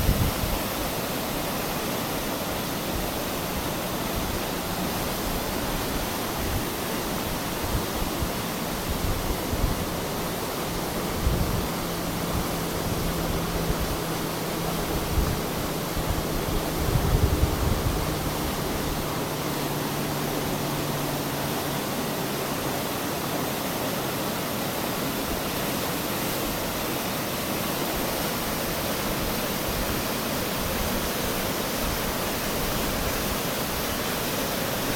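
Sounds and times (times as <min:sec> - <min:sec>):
wind thumps on microphone: 0:00.0 - 0:00.6, 0:14.8 - 0:19.0
floodwater rushing: 0:00.0 - 0:34.9.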